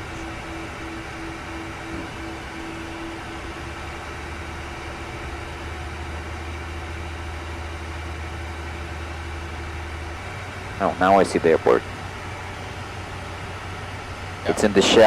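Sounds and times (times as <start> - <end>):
steady tone: 0.0 - 5.0, 14.5 - 15.0
jet engine hum: 0.0 - 15.0.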